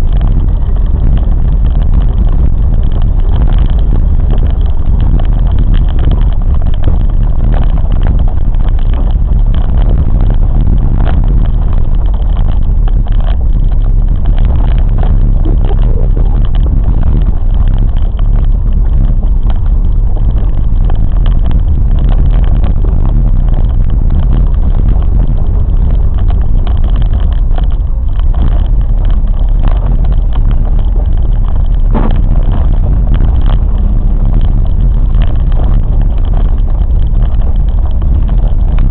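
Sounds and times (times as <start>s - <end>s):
train rumbling: 0.0s - 38.9s.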